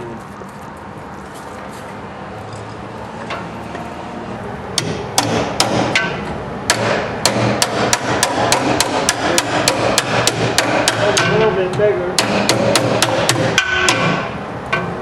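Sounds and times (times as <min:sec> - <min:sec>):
hammer blows on sheet metal: 0:04.8 - 0:15.0.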